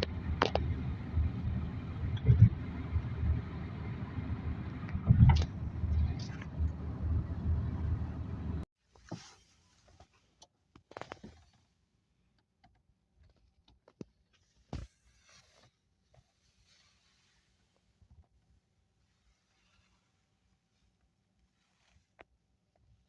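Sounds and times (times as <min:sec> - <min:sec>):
faint clicks and knocks: 0:00.0 - 0:01.3
vehicle engine rumbling: 0:00.0 - 0:08.7.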